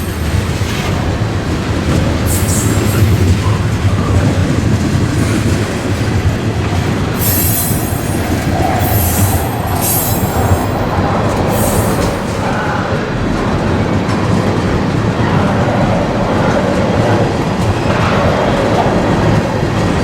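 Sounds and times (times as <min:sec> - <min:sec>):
diesel train rumble: 0:00.0 - 0:20.0
high-pitched wheel squeal: 0:07.2 - 0:10.9.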